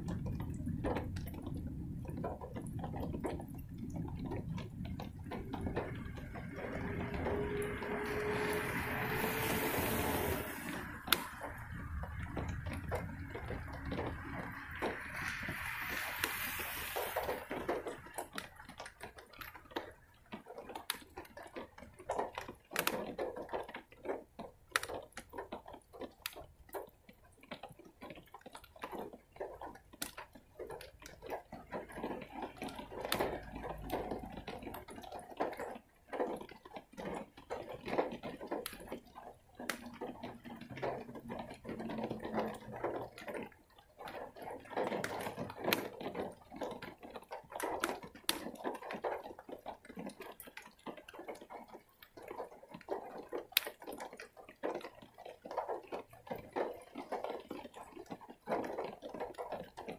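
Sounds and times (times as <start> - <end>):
raindrops tapping: 0.0 - 59.9
tyres hissing on wet road: 5.9 - 12.2, 12.8 - 18.2.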